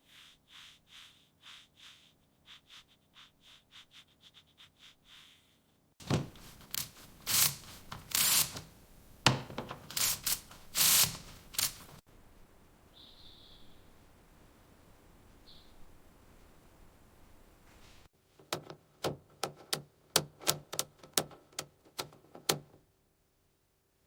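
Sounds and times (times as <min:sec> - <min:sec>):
hand sanding strokes: 0:00.0 - 0:08.8, 0:09.9 - 0:12.0.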